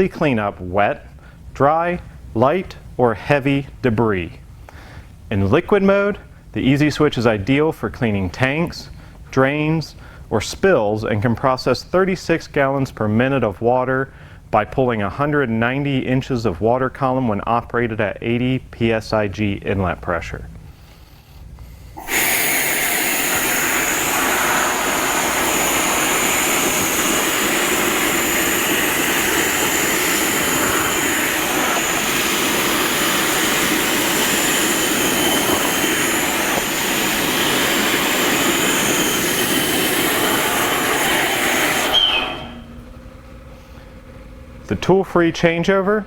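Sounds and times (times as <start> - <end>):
air-powered vacuum rushing: 21.7 - 44.2.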